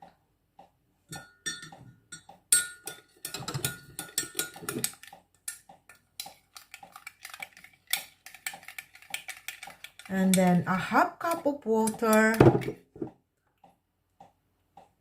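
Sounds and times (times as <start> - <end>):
utensils clinking against dishes: 1.2 - 10.6.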